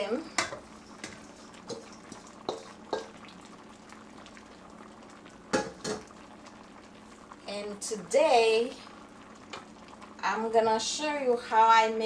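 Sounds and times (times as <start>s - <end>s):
faint steady hum: 0.0s - 12.0s
spoon stirring in a pot: 0.3s - 3.2s
spoon knocking on pot: 2.5s - 3.1s, 5.5s - 6.0s.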